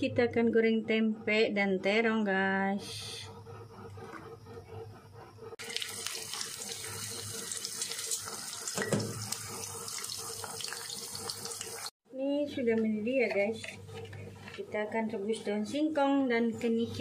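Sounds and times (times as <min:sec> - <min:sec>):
frying in hot oil: 0:05.6 - 0:12.0.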